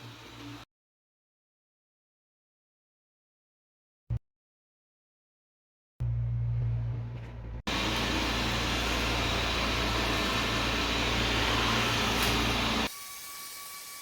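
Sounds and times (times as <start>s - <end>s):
low hum: 6.0s - 11.4s
robot vacuum fan whirring: 7.7s - 12.9s.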